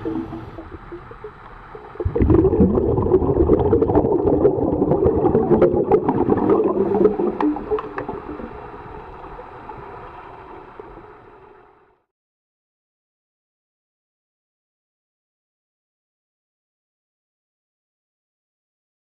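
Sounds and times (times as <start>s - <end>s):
underwater air bubbles gurgling: 0.0s - 11.6s.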